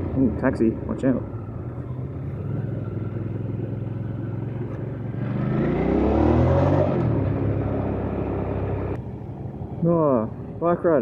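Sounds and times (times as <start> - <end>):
motorcycle engine revving: 1.3 - 9.0.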